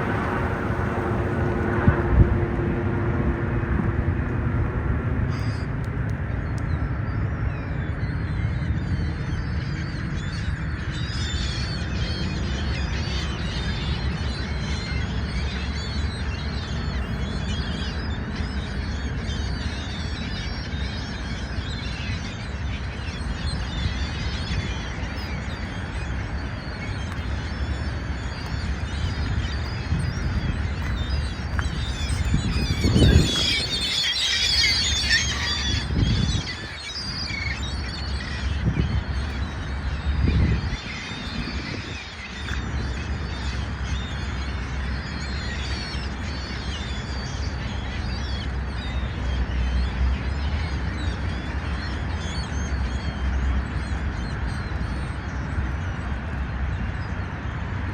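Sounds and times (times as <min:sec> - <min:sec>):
gulls calling: 0:00.0 - 0:04.2, 0:07.5 - 0:57.9
steady low rumble: 0:00.0 - 0:09.0, 0:21.4 - 0:42.0.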